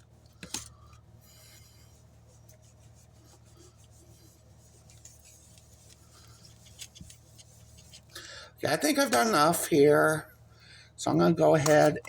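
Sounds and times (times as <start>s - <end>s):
brush scrubbing on card: 1.4s - 8.1s.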